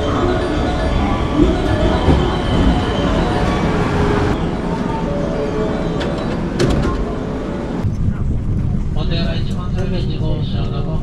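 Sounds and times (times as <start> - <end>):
train standing with doors open: 0.0 - 8.9
electric train pulling in: 0.0 - 9.0.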